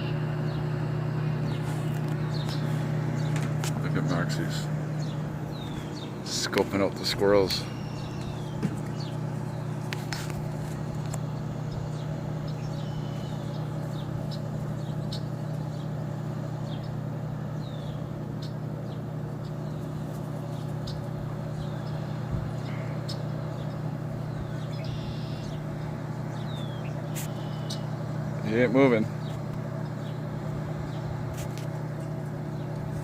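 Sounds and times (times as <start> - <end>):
urban traffic hum: 0.0 - 33.0
bird chirps: 1.4 - 3.5, 4.4 - 6.8, 7.4 - 9.8, 11.3 - 16.0, 17.6 - 28.5.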